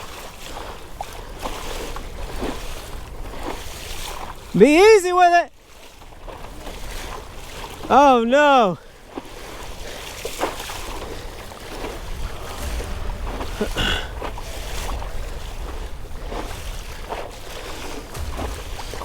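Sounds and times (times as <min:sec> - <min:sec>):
wind buffeting microphone: 0:00.0 - 0:05.0, 0:05.6 - 0:19.0
water lapping against kayak: 0:00.0 - 0:19.0
water splashes: 0:00.0 - 0:19.0.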